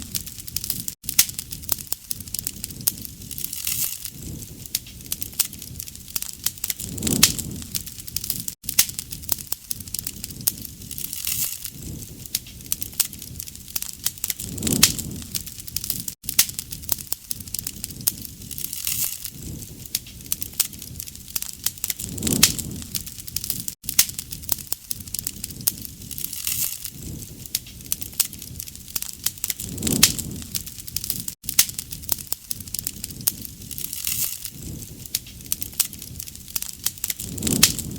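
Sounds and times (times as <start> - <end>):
wood fire crackling and popping: 0.0 - 37.9.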